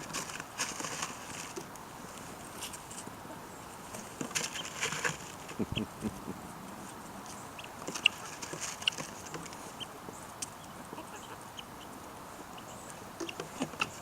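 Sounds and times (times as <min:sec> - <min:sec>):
chickens pecking and scratching: 0:00.0 - 0:14.0
low chicken clucks: 0:04.6 - 0:14.0.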